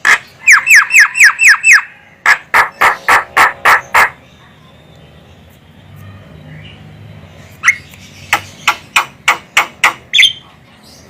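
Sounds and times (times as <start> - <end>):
bird giving sharp calls: 0.0 - 4.3, 7.6 - 10.4.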